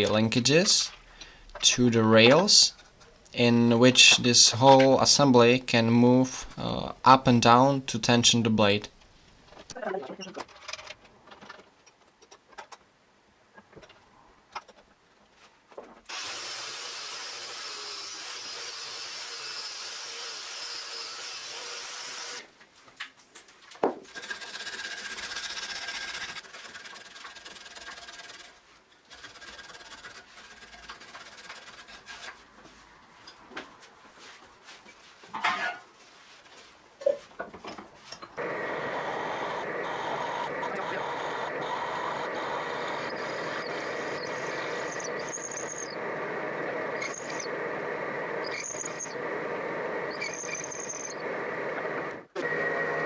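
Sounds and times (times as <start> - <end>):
power tool on wood: 16.1 - 22.5, 24.1 - 28.5, 38.4 - 53.0.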